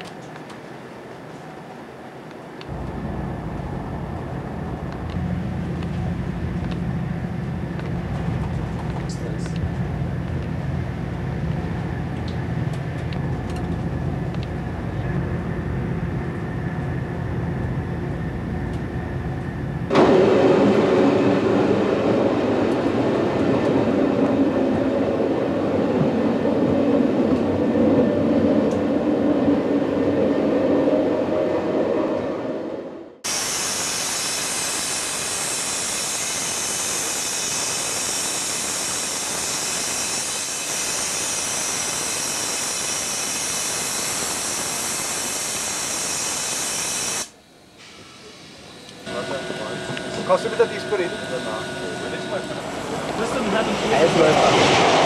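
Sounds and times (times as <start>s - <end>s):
rail vehicle rumble with steady tones: 0.0s - 33.2s, 47.4s - 55.0s
rail vehicle running roar: 0.0s - 55.0s
steady high-pitched hiss: 33.3s - 53.9s.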